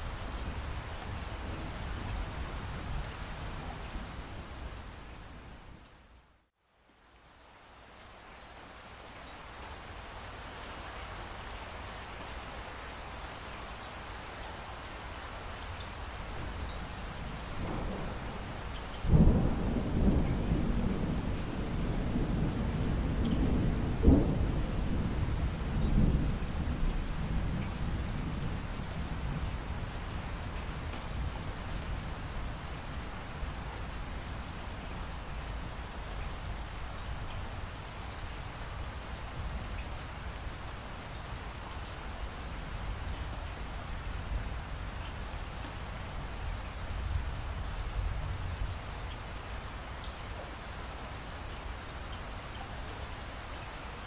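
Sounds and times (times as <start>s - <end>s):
steady rain: 0.0s - 54.0s
thunder clap and rumble: 17.6s - 32.1s.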